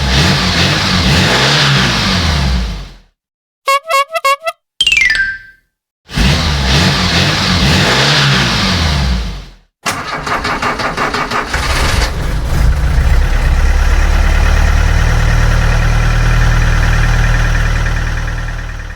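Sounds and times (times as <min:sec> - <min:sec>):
engine cranking and idling: 0:09.8 - 0:18.9.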